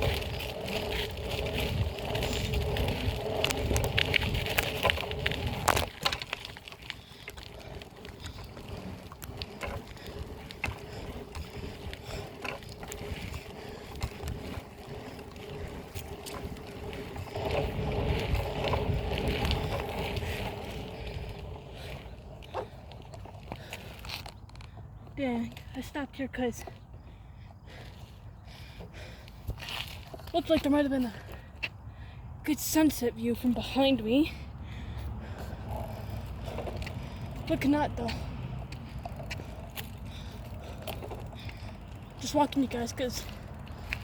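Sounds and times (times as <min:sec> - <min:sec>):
wind rumbling on microphone: 0:00.0 - 0:25.6
bike clicks and rattles: 0:00.0 - 0:32.1, 0:32.8 - 0:44.0
road noise: 0:00.0 - 0:44.0.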